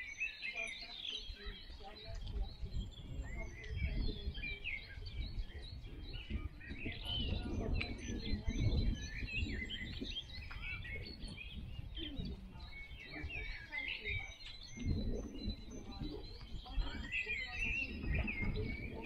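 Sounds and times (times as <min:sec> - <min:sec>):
small birds chirping and trilling: 0:00.0 - 0:19.0.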